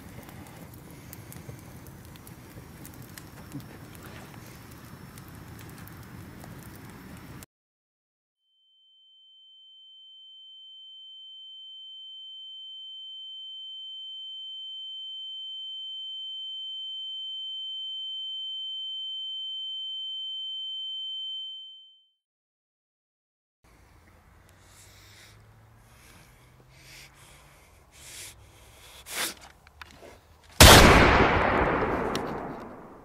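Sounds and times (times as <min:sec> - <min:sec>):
fainter lower electronic tone: 0:08.7 - 0:22.1.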